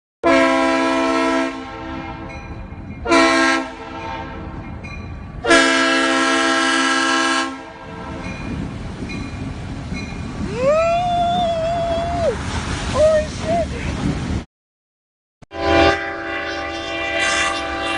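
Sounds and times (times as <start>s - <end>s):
air horn blasts: 0.2s - 2.3s, 3.0s - 4.4s, 5.4s - 8.2s, 15.5s - 17.9s.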